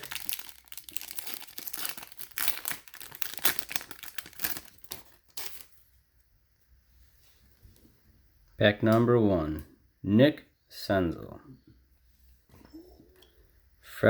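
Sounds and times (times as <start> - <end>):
wrapper tearing and crinkling: 0.0 - 5.7.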